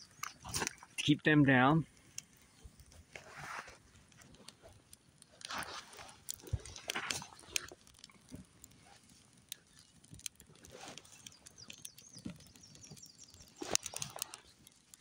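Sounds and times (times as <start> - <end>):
soft rustling: 2.6 - 4.7
light clicks and snaps: 9.5 - 15.0.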